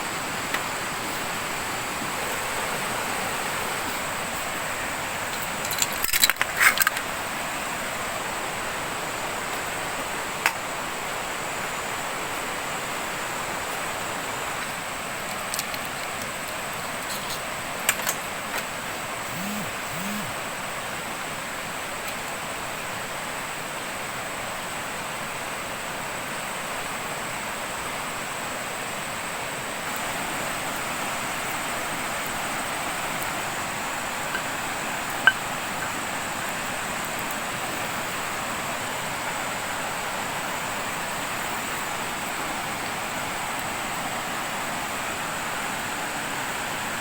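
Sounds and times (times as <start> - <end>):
river water rushing: 0.0 - 17.8, 20.4 - 47.0
metallic clinking and clattering: 5.4 - 7.0
high-pitched tone: 19.3 - 20.4.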